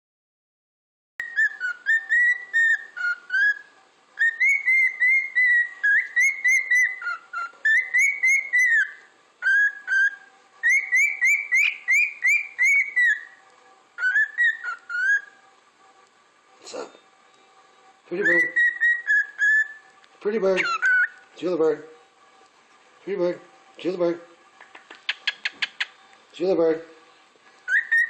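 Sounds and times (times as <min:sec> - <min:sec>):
cockatiel whistling: 0:01.2 - 0:13.4, 0:14.0 - 0:15.4, 0:18.2 - 0:19.8, 0:20.5 - 0:21.3, 0:25.0 - 0:26.0, 0:27.7 - 0:28.0.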